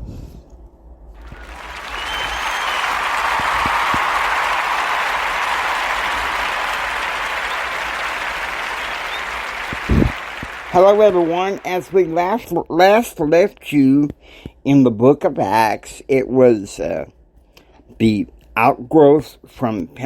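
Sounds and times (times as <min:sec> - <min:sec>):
crowd applause: 0:01.2 - 0:12.4.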